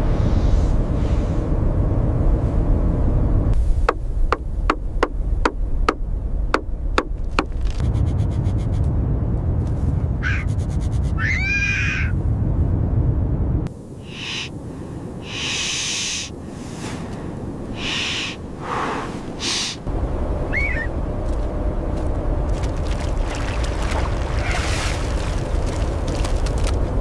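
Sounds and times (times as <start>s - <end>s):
blizzard wind roaring: 0.0s - 27.0s
hissing wind gusts: 0.0s - 27.0s
animal hooting and chirping calls: 11.2s - 12.1s, 14.0s - 14.5s, 17.8s - 18.4s, 20.5s - 20.9s.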